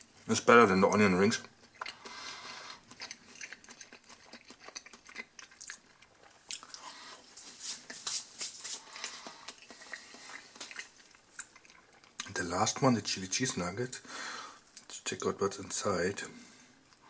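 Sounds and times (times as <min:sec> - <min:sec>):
person chewing crunchy food: 0:01.4 - 0:12.3.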